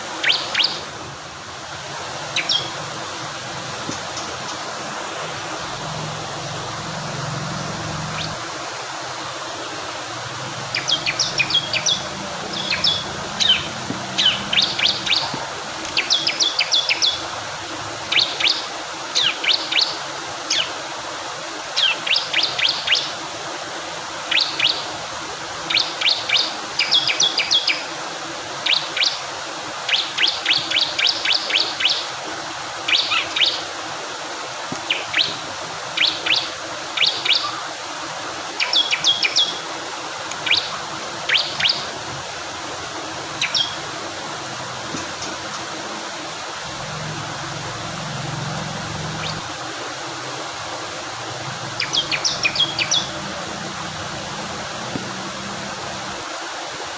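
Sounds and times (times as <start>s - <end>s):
flowing water: 0.0s - 56.9s
bird singing sharp high chips: 10.7s - 17.2s, 43.4s - 43.8s, 51.8s - 53.2s.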